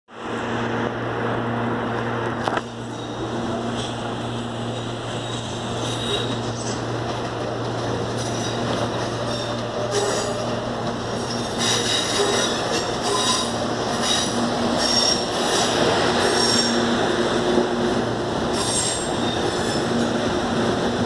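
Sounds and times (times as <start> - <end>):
train rumbling: 0.1 - 21.0
train wheels squealing on rails: 2.6 - 7.1, 8.0 - 17.2, 18.5 - 20.6.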